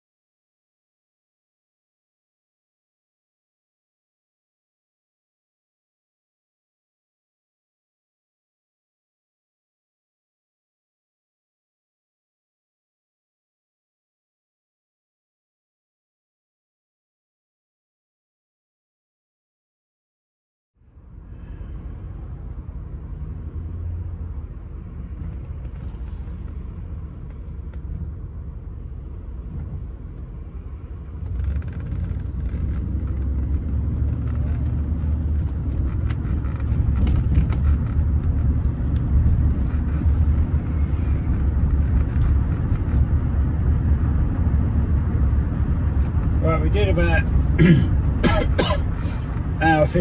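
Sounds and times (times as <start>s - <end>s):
car engine rumble from inside: 20.8s - 50.0s.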